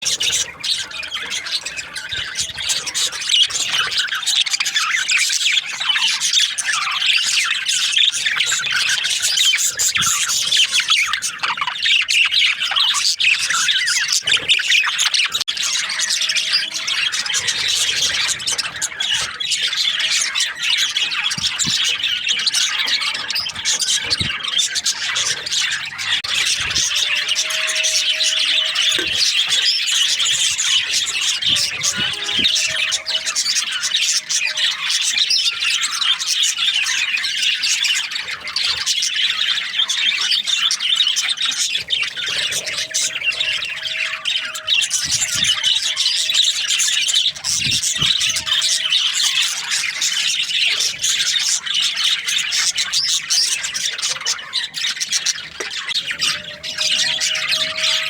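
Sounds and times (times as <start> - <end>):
budgerigars chattering and squawking: 0.0 - 58.0.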